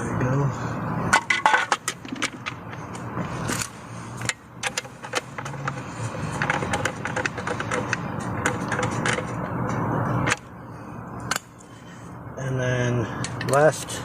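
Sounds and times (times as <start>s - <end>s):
steady low hum: 0.0s - 14.0s
hand tools clicking and tapping: 3.5s - 10.4s.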